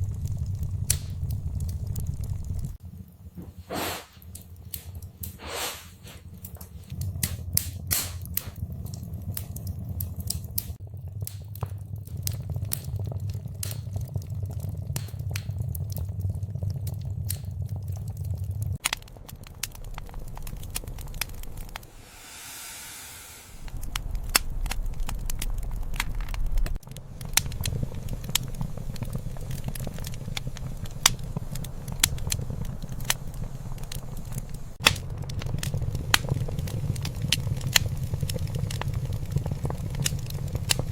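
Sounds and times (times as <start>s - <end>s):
wood fire crackling: 0.0s - 22.5s, 23.6s - 40.9s
low rumble: 0.0s - 40.9s
short hiss: 3.7s - 4.2s, 5.3s - 6.3s.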